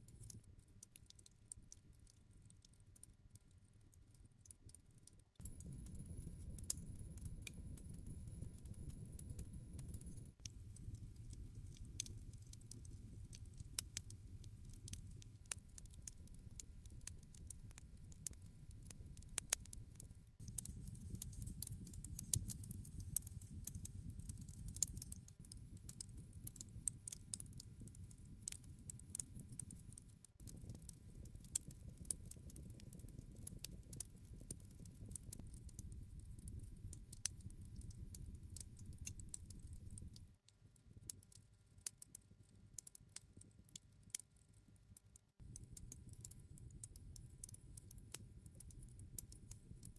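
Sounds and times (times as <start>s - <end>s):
campfire crackles and pops: 4.6s - 42.2s, 45.4s - 49.9s
low rumble of flames: 5.4s - 19.8s, 20.4s - 40.4s.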